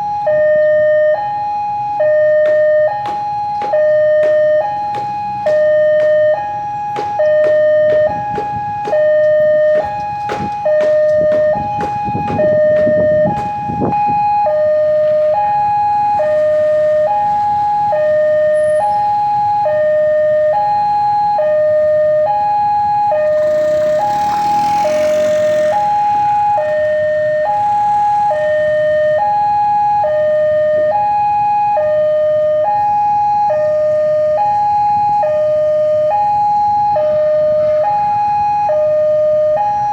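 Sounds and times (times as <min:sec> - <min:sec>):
level crossing two-tone alarm: 0:00.0 - 0:39.9
sharp clacks: 0:02.4 - 0:14.0.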